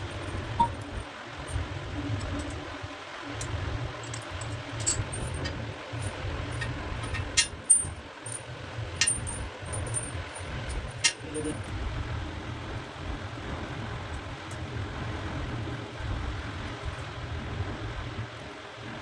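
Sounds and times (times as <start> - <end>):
metallic clicks of tap fittings: 9.0 - 10.1.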